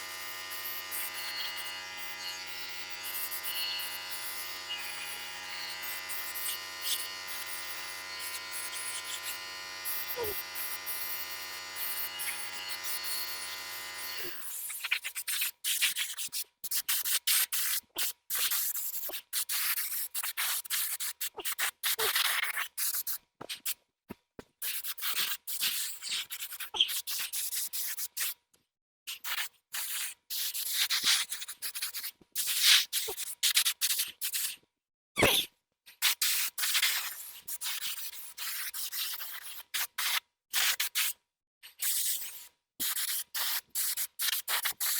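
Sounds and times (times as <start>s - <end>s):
small electric tool humming: 0.0s - 15.4s.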